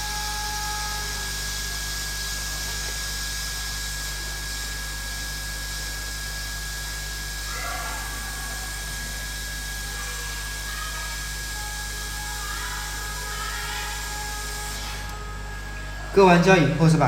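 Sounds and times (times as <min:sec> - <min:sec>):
hot air hissing: 0:00.0 - 0:17.0
low electrical hum: 0:00.0 - 0:17.0
thin high whine: 0:00.0 - 0:17.0.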